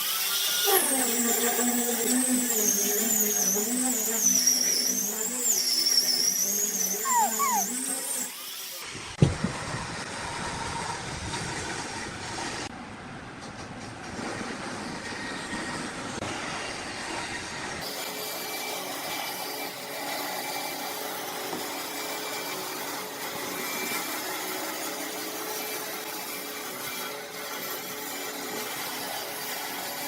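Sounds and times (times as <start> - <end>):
power tools cutting wood: 2.1 - 7.0.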